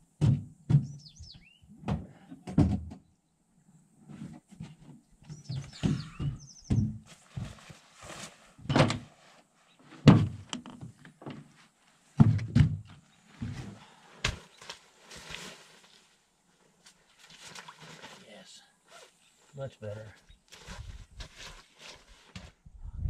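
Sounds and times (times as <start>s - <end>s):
bird chirping: 0.8s - 1.7s, 5.2s - 7.0s.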